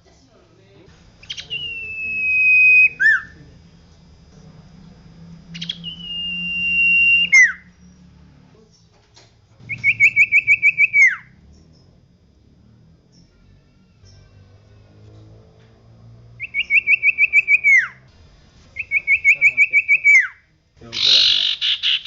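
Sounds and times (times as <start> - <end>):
bird whistling song: 1.2 - 3.4, 5.5 - 7.9, 9.6 - 11.8, 16.4 - 18.0, 18.8 - 20.4, 21.0 - 22.0.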